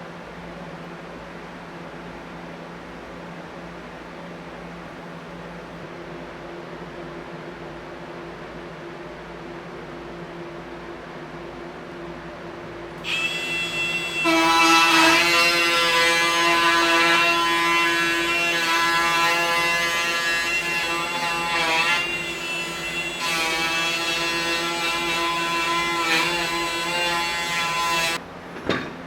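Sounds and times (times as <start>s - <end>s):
power tool motor whine: 13.0s - 28.2s.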